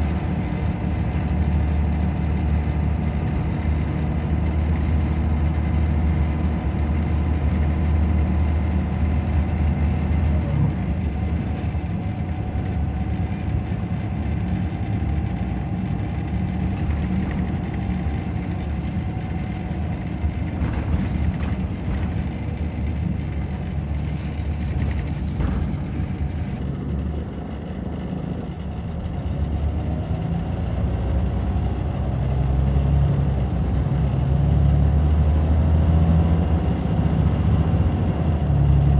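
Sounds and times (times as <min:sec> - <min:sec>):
bus diesel engine drone: 0:00.0 - 0:38.9
light rattles: 0:10.0 - 0:27.7.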